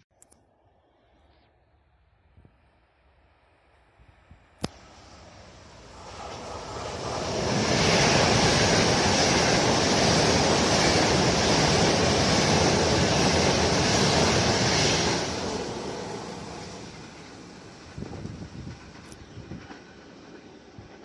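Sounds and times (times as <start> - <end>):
train rushing past: 4.7 - 21.0.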